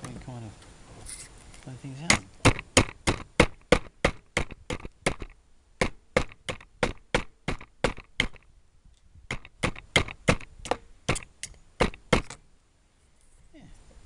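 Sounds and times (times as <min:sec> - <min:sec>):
axe chopping wood: 0:02.1 - 0:08.4, 0:09.3 - 0:12.4.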